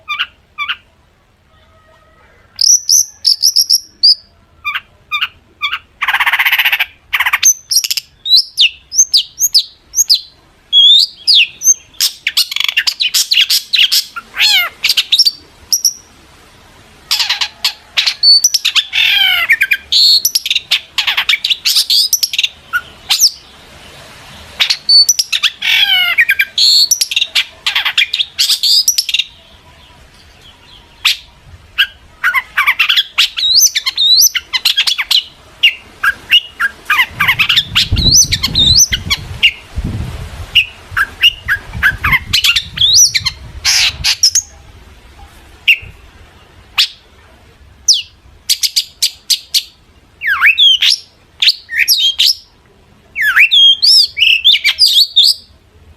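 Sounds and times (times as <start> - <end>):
bird singing chattering song: 2.6 - 16.1, 17.1 - 23.6, 24.6 - 39.7, 40.6 - 44.6, 47.9 - 52.5.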